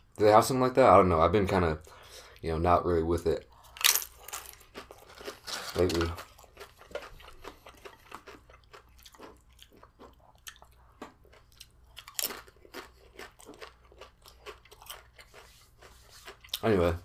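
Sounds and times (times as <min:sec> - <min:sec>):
person chewing crunchy chips: 0:03.5 - 0:16.9.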